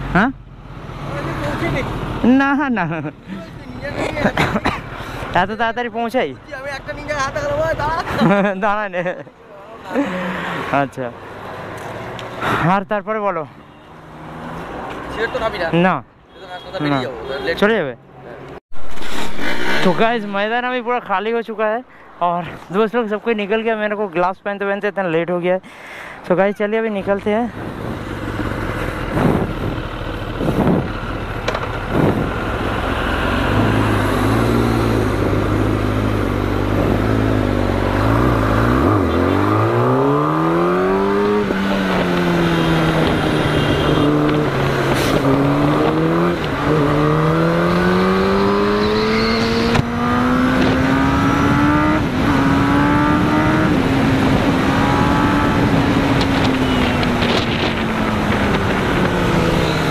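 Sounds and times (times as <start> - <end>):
motorcycle engine revving: 27.9 - 59.9.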